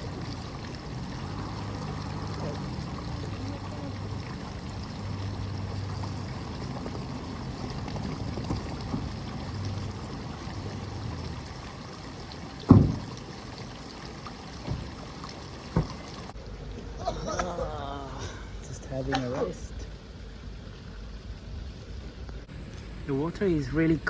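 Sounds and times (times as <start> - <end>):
spring water running: 0.0 - 16.4
light knocks: 12.7 - 13.2, 15.7 - 16.2
loud thump: 12.7 - 13.2.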